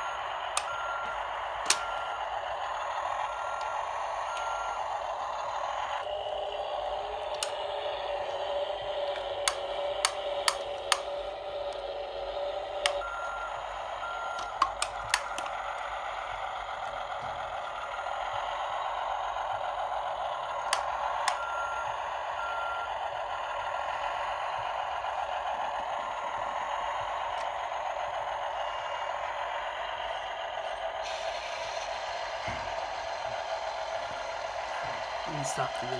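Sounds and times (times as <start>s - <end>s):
toy engine sound effect: 0.0s - 31.0s
plastic toy clicks: 1.6s - 1.8s, 9.2s - 11.8s, 14.4s - 15.6s.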